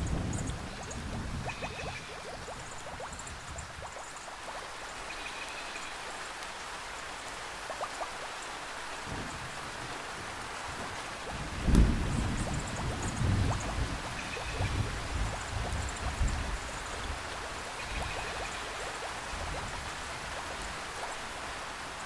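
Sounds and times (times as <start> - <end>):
low thunder rumble: 0.0 - 3.1, 9.1 - 17.4
water dripping: 0.0 - 9.5, 10.7 - 21.2
rain falling on foliage: 0.0 - 22.0.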